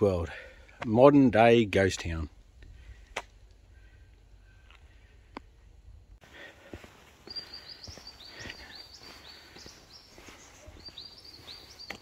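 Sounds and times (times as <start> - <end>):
soft footsteps: 6.2 - 12.0
small bird chirping and trilling: 7.3 - 12.0.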